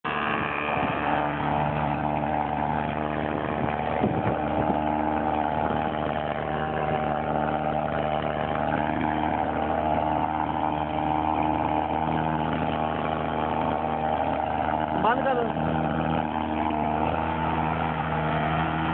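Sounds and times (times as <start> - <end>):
fogging machine engine buzzing: 0.0 - 18.9.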